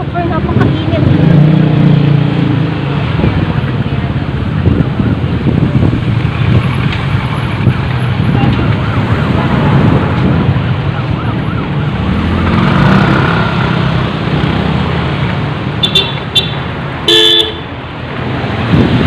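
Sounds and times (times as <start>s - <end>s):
road traffic rumble: 0.0s - 19.0s
car horn toots: 15.8s - 17.7s
loud horn blast: 17.1s - 17.7s.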